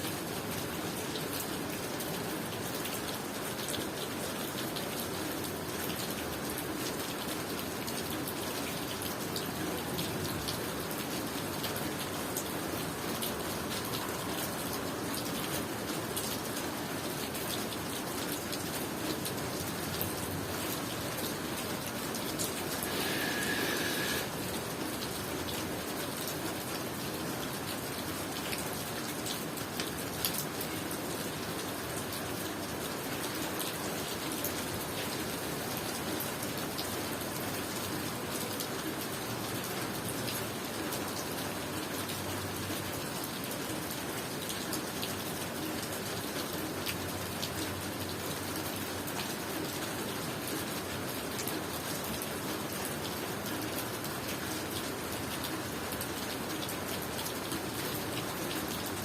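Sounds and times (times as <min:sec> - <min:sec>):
rain pattering: 0:00.0 - 0:59.0.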